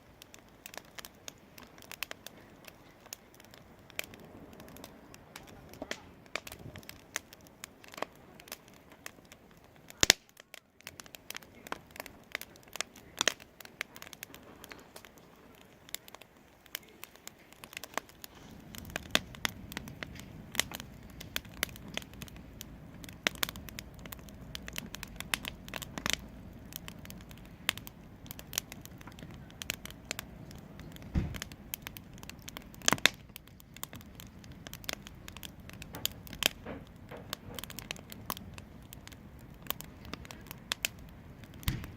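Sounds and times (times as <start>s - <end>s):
wood fire crackling and popping: 0.0s - 41.9s
low steady rumble: 11.0s - 41.9s.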